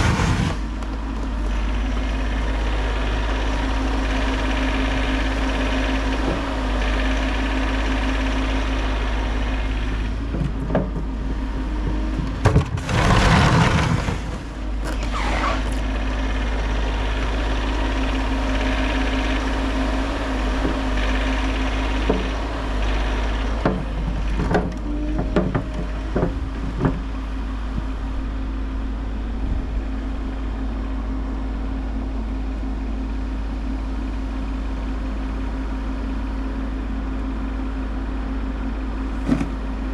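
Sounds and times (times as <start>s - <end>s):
excavator diesel engine running: 0.0s - 39.9s
short knocks and clunks: 10.2s - 13.0s, 23.6s - 27.2s, 39.2s - 39.6s.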